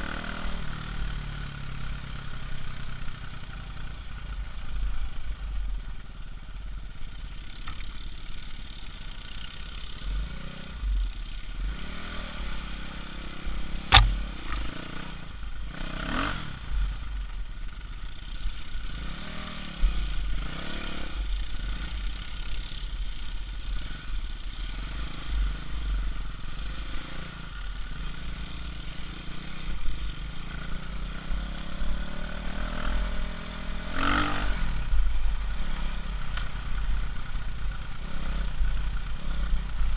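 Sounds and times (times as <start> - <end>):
sharp knock: 13.9 - 14.6.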